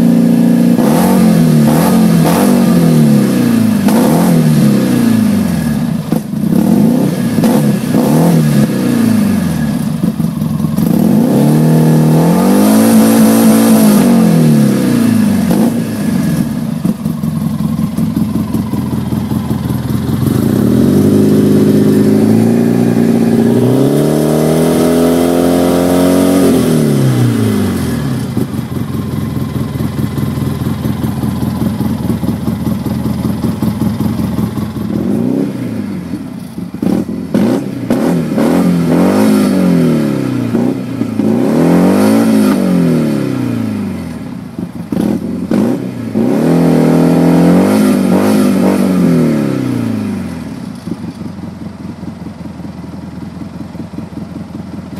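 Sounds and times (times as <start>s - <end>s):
off-road vehicle engine revving: 0.0s - 17.1s, 19.1s - 28.8s, 34.8s - 50.9s.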